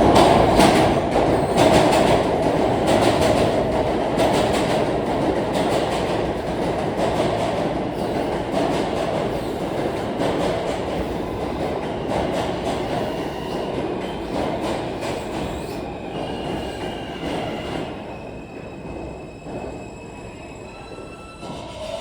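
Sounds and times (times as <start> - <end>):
subway train wheels clacking: 0.0 - 22.0.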